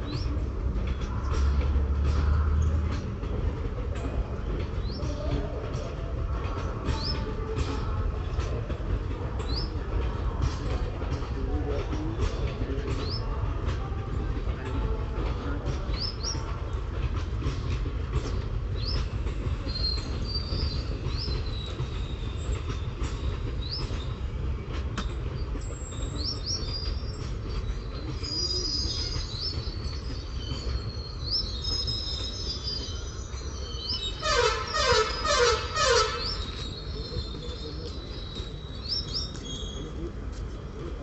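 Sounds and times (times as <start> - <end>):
train wheels rumbling on rail: 0.0 - 41.0
wheel squeals: 25.4 - 40.0.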